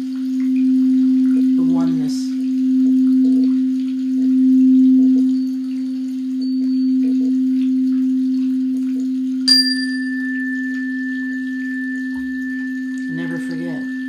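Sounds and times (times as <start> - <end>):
singing bowl low tone: 0.0 - 14.0
bell-like chime: 6.4 - 7.1, 9.5 - 14.0.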